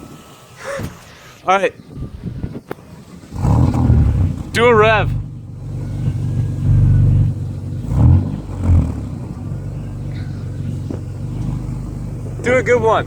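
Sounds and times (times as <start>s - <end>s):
car engine idling: 1.9s - 13.0s
car engine revving: 2.9s - 13.0s.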